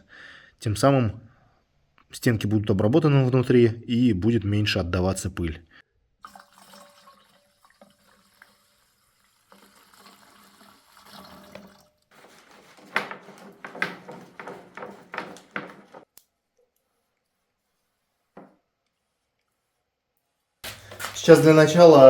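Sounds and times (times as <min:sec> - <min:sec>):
sprayer spurts: 0:12.2 - 0:16.0.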